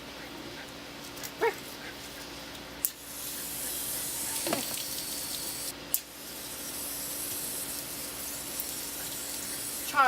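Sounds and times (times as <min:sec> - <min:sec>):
hose spraying water: 0:02.9 - 0:10.0.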